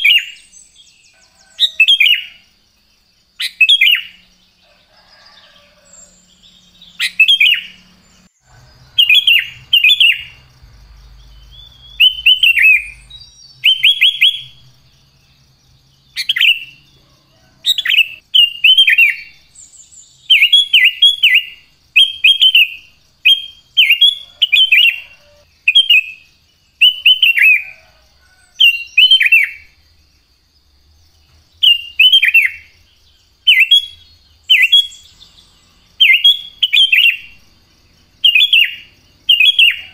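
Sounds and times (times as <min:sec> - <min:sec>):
bird singing quick chirps: 0:05.8 - 0:14.7.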